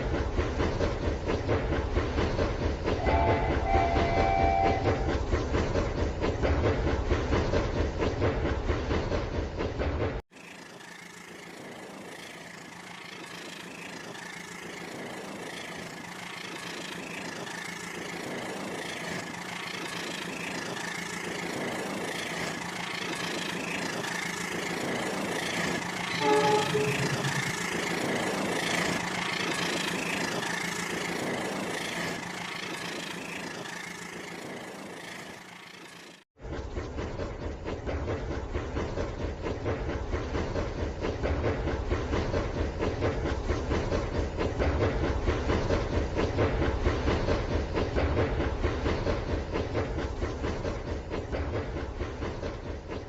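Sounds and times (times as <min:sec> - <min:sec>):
toy train horn toot: 0:03.0 - 0:05.1, 0:26.1 - 0:27.6
toy train motor whir: 0:10.4 - 0:36.2.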